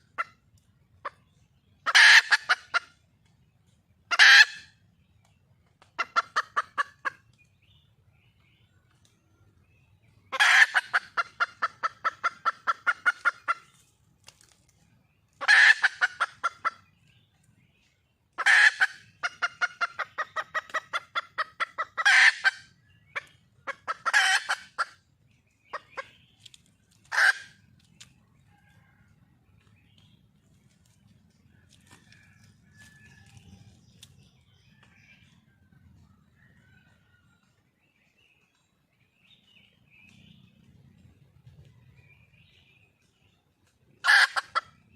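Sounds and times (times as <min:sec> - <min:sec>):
hen clucking rapidly: 0:00.0 - 0:03.4, 0:04.0 - 0:04.8, 0:05.6 - 0:07.4, 0:10.1 - 0:14.0, 0:15.3 - 0:37.5, 0:43.8 - 0:44.9.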